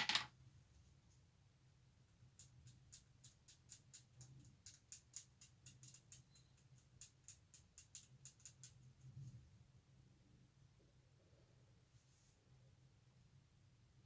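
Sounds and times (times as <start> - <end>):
light ticks and scratches on plastic: 2.4 - 9.4.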